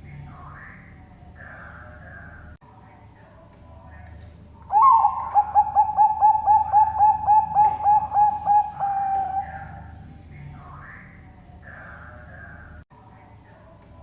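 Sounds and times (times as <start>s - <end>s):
zebra dove cooing: 4.7s - 10.0s.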